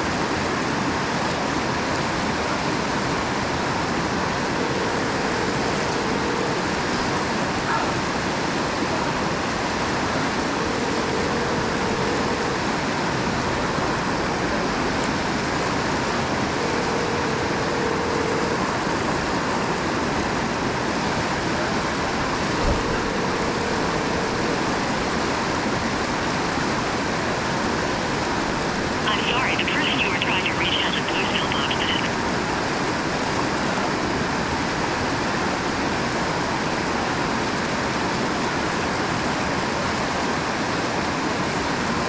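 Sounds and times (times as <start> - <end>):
telephone ringback tone: 4.2 - 7.4, 10.2 - 13.1, 16.2 - 20.0, 22.2 - 25.6, 29.1 - 32.1.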